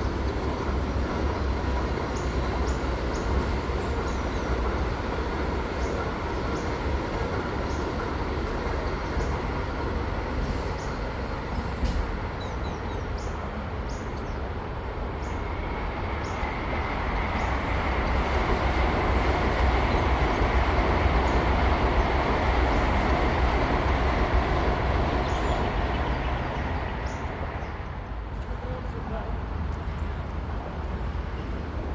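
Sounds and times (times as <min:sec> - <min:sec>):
high-speed train passing: 0:00.0 - 0:31.9.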